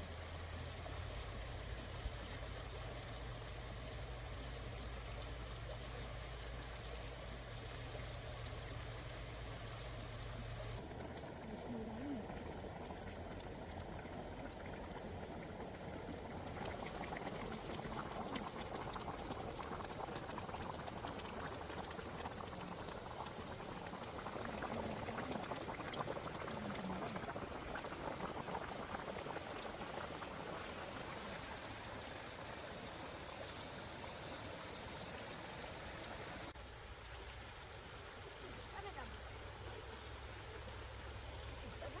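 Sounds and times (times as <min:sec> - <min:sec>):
water bubbling: 0:09.9 - 0:36.5.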